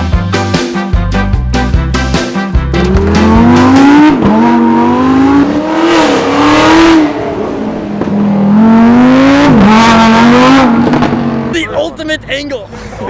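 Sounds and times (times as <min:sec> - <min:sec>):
car engine accelerating hard: 0:02.7 - 0:11.6.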